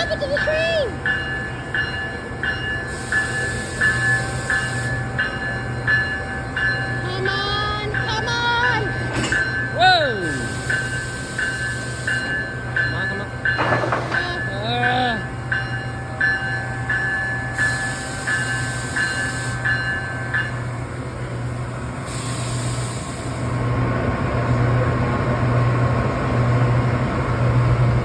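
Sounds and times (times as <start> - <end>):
train engine humming: 0.0 - 28.0
air hissing bursts: 22.1 - 23.6.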